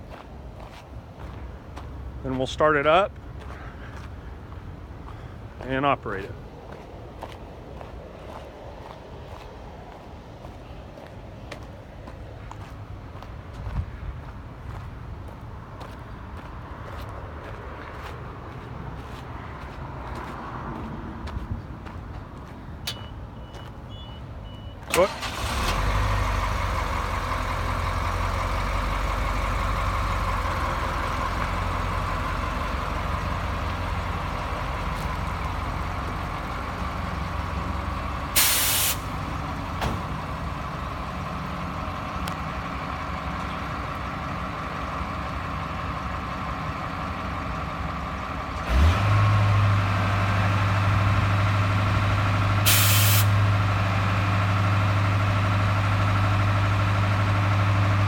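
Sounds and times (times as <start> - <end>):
truck engine idling: 21.2 - 58.0
short air hisses: 38.4 - 39.1, 52.7 - 53.4.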